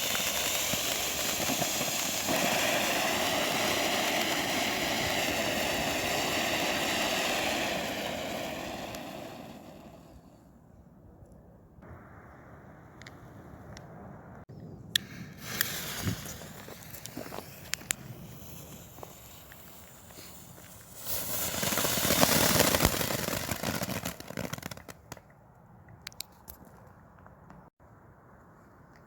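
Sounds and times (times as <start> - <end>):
firework fountain hissing and crackling: 0.0 - 10.4, 15.4 - 25.2.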